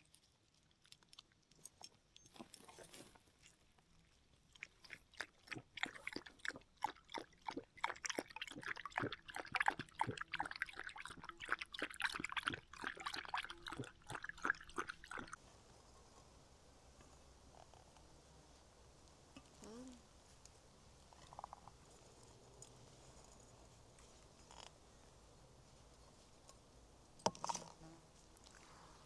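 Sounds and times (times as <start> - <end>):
crunchy chewing: 0.1 - 15.4, 18.7 - 25.2.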